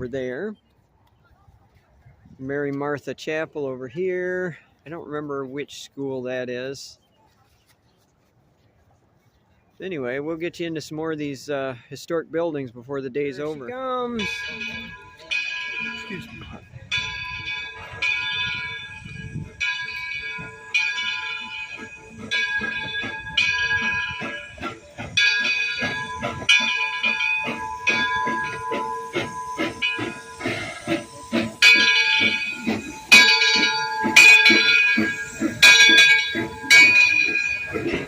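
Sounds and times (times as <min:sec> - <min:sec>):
locomotive bell ringing: 0:13.3 - 0:38.0
fast rhythmic train clatter: 0:13.4 - 0:38.0
hissing steam: 0:15.6 - 0:38.0.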